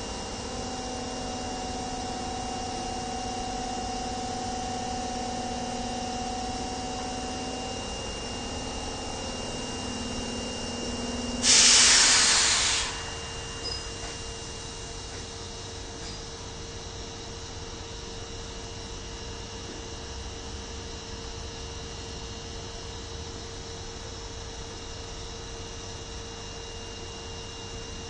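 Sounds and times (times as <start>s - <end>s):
subway train equipment hum: 0.0s - 19.8s
compressed air hiss: 11.4s - 14.2s.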